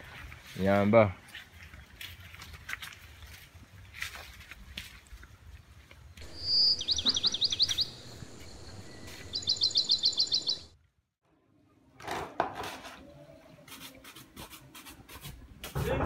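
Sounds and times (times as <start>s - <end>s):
background hiss: 6.2s - 10.7s
songbird singing: 6.2s - 10.8s.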